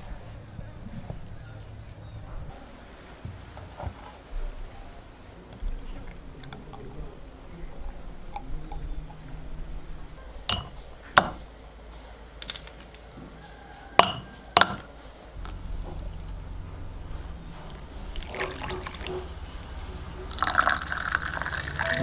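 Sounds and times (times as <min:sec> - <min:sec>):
dishes clinking: 0:10.3 - 0:11.5, 0:14.0 - 0:22.0.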